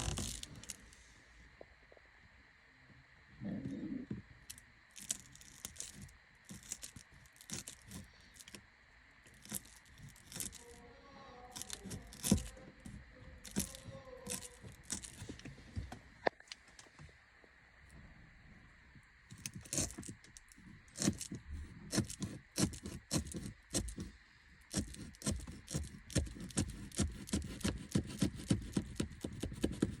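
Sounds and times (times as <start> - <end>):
packaging rustling and crinkling: 0.0 - 0.8.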